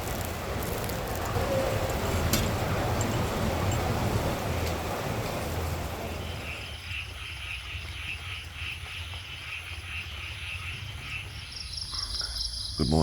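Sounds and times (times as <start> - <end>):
rushing noise: 0.0 - 6.8
night chorus of calling animals: 0.0 - 13.0.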